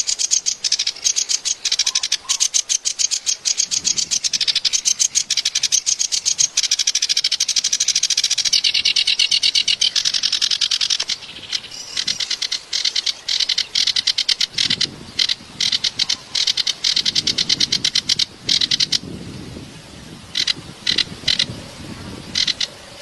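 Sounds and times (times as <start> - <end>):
reed warbler singing: 0.0 - 23.0.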